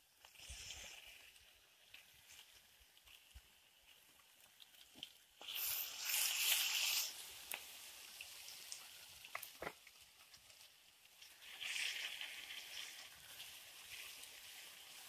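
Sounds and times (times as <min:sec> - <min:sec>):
chicken sizzling in a pan: 0:00.0 - 0:15.0
sharp popping of fat: 0:09.3 - 0:09.9.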